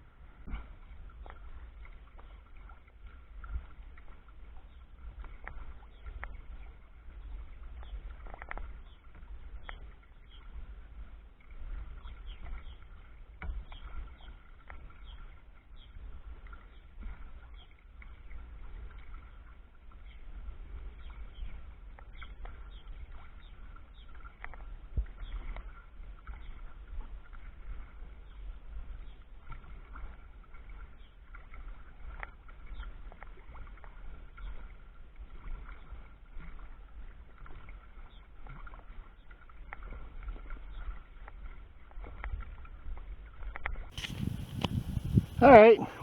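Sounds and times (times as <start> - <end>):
water splashing along a kayak hull: 0.0 - 46.0
wind rumble on microphone: 0.0 - 46.0
small irregular clicks and ticks: 7.7 - 8.8, 24.2 - 25.7.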